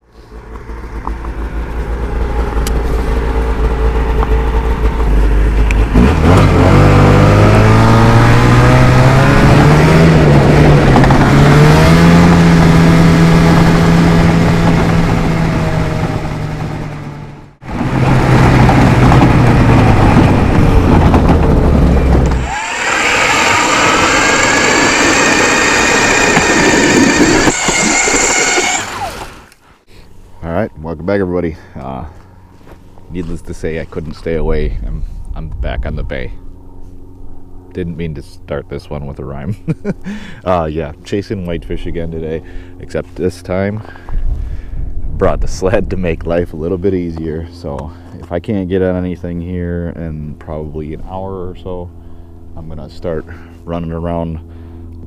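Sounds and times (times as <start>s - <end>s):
snowmobile engine: 0.2s - 29.6s.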